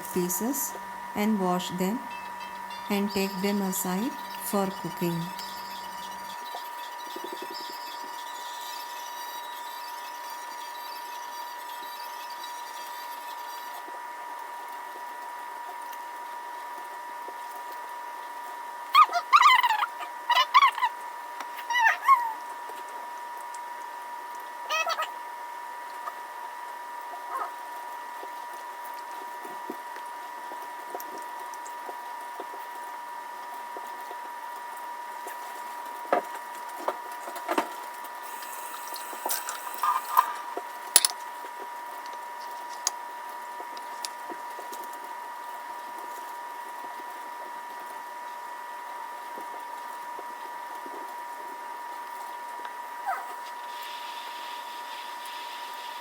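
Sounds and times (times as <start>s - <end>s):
high-pitched electrical hum: 0.0s - 56.0s.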